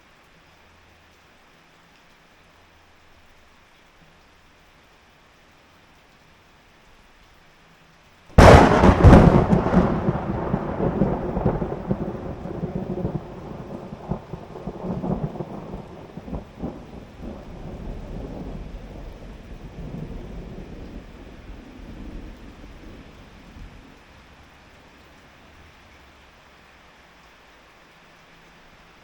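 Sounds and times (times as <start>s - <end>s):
rain hissing: 0.0s - 29.0s
thunder crack and rumble: 8.4s - 24.6s.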